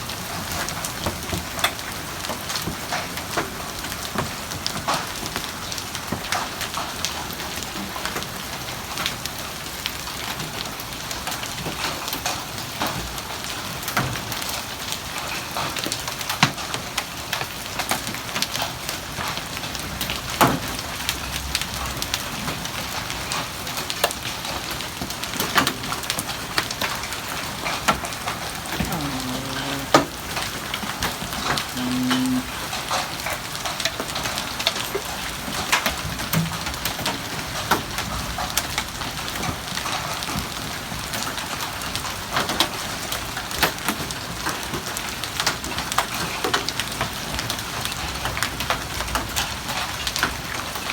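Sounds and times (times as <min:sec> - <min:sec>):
heavy rain hiss: 0:21.3 - 0:35.0.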